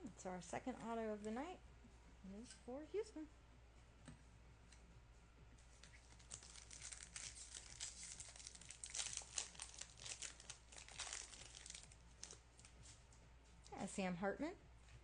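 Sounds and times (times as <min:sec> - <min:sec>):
card pack wrapper crinkling: 0:05.8 - 0:12.7.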